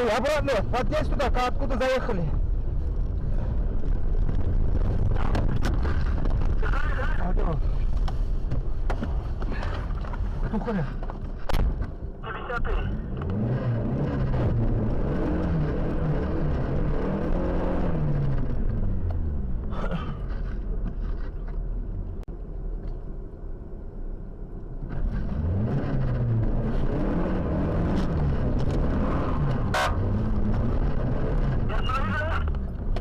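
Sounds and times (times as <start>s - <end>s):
car engine revving: 12.5s - 19.8s, 24.8s - 33.0s.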